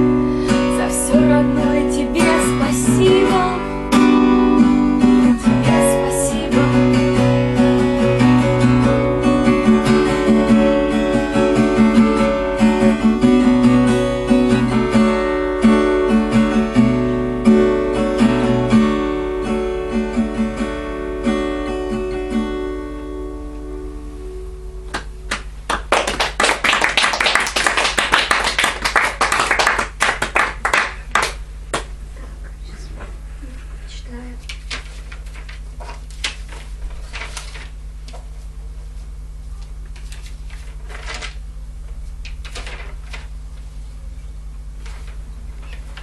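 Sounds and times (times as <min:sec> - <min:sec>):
acoustic guitar playing: 0:00.0 - 0:25.9
audience applause: 0:25.3 - 0:31.4.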